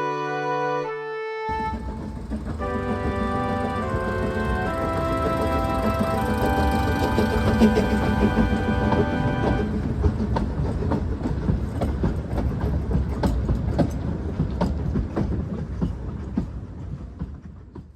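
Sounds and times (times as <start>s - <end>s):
music: 0.0s - 9.8s
train rumbling over rail joints: 1.5s - 17.9s.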